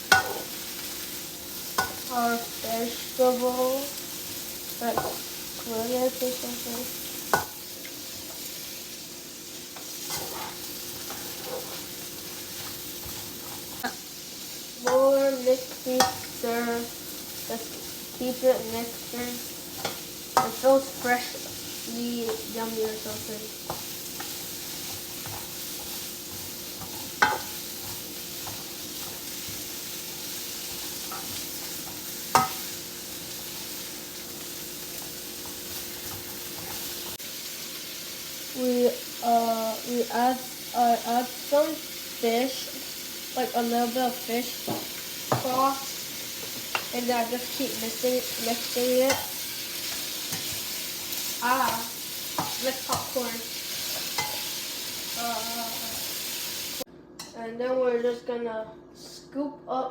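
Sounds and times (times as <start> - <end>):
vegetables sizzling in pan: 0.0 - 56.9.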